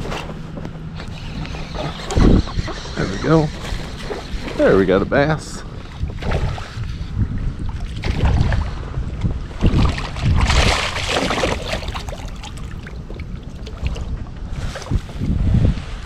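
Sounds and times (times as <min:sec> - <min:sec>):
wind buffeting microphone: 0:00.0 - 0:16.0
water splashing: 0:07.7 - 0:15.2.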